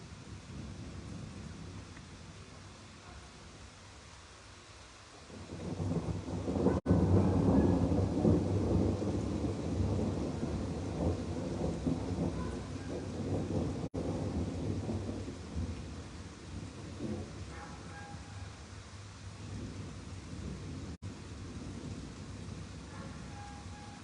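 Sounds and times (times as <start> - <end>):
thunder rolling: 5.3 - 18.5.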